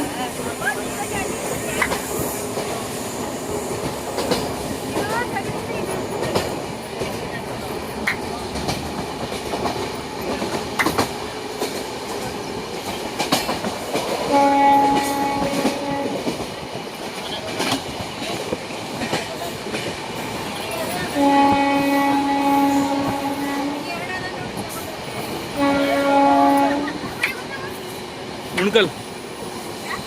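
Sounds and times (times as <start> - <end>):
train wheels clicking over rail joints: 1.2 - 30.0
train horn blast: 14.3 - 16.3, 21.1 - 24.0, 25.6 - 27.0.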